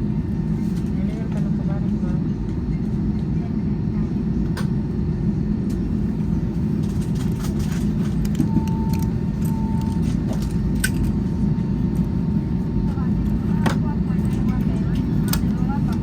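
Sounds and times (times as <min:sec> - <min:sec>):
airliner cabin rumble: 0:00.0 - 0:16.0
short beeps: 0:08.4 - 0:10.0.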